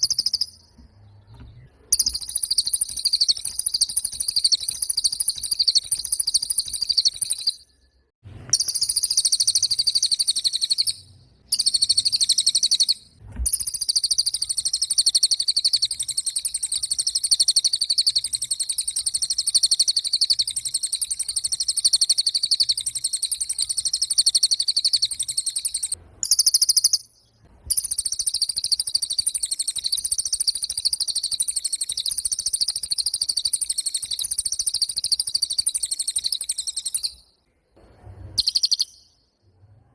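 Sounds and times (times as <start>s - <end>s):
songbird buzzy trill: 0.0s - 39.4s.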